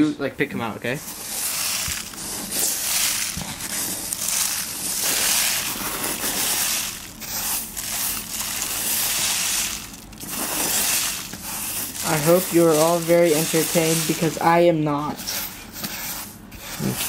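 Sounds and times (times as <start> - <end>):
dry corn husks rustling: 1.0 - 14.6.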